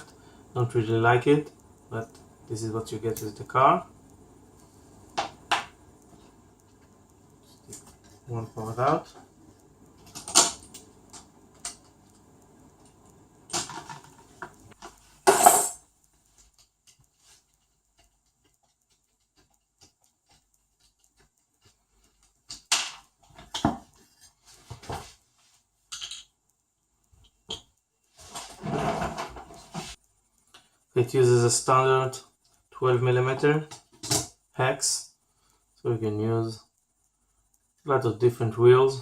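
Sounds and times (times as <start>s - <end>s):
plastic parts and tools clattering: 13.5s - 15.8s.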